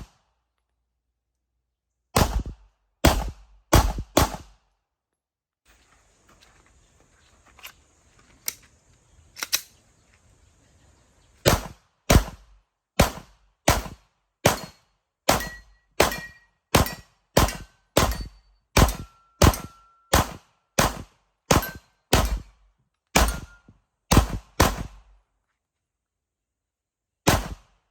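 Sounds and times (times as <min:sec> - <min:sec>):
faint gunshots: 0:02.2 - 0:04.6, 0:11.4 - 0:16.2, 0:16.8 - 0:22.5, 0:23.2 - 0:23.5, 0:24.1 - 0:25.0, 0:27.3 - 0:27.8
pistol shots: 0:02.2 - 0:04.6, 0:11.4 - 0:12.4, 0:13.0 - 0:22.5, 0:23.2 - 0:25.0, 0:27.3 - 0:27.7.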